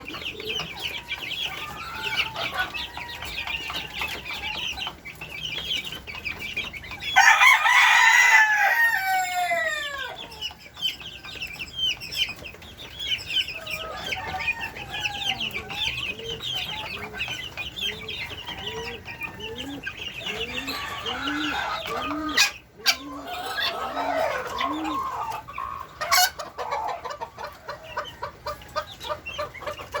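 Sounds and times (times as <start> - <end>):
hen clucking: 0.0 - 30.0
rooster crowing: 7.2 - 10.2, 13.7 - 15.8.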